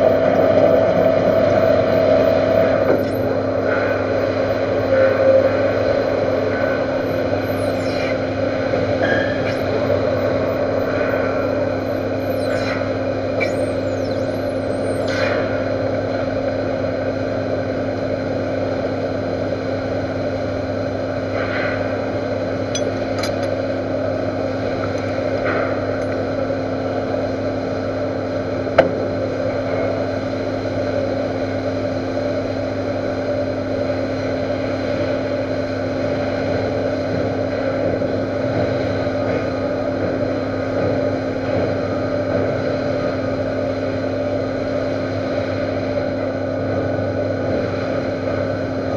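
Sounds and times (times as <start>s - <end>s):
metal lathe humming: 0.0s - 15.2s.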